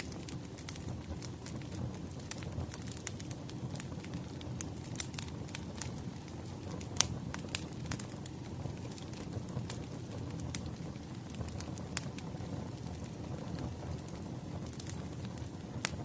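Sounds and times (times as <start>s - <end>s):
sharp pops of fire: 0.0s - 16.0s
wood fire crackling: 0.0s - 16.0s.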